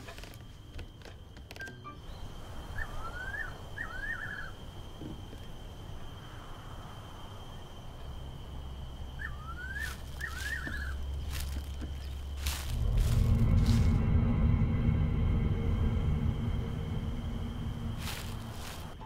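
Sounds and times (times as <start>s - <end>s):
faint steady high whine: 0.0s - 19.0s
bird rising chirps: 1.9s - 4.7s, 9.1s - 19.0s
low rumble: 10.1s - 19.0s.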